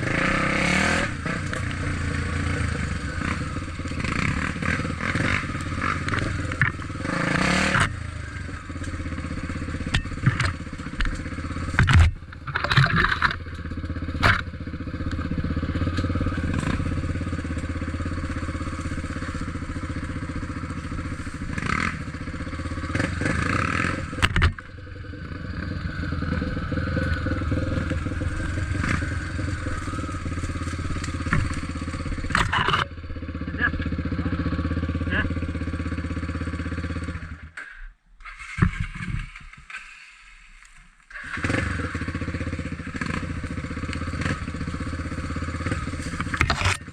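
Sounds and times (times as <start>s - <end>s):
motorcycle engine running: 0.0s - 39.8s, 41.0s - 46.9s
knocks and clatter: 9.8s - 14.6s, 27.2s - 32.9s.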